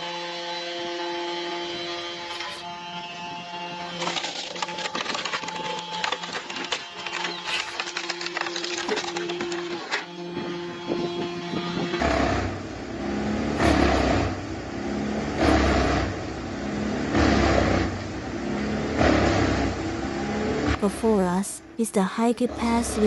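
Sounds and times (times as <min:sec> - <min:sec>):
heavy machinery surging: 0:00.0 - 0:21.8
machinery clicks: 0:04.0 - 0:10.2.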